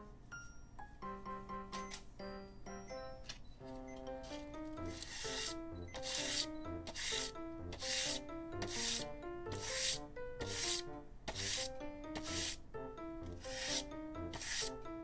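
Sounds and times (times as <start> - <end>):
background music plucked melody: 0.0 - 15.0
rhythmic rasping strokes: 4.8 - 12.6, 13.3 - 14.8.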